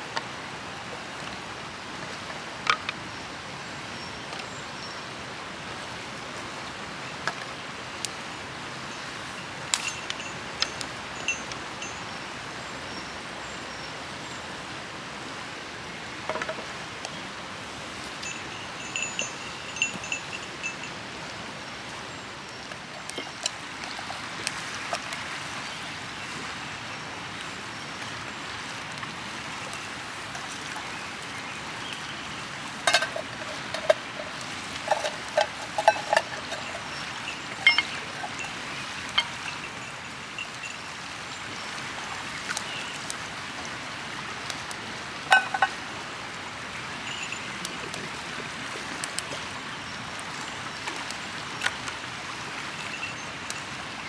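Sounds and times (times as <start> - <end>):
river water flowing: 0.0 - 54.0
light metallic clinks: 8.9 - 12.0, 18.2 - 20.9, 29.7 - 31.0, 32.8 - 40.9, 45.3 - 45.8.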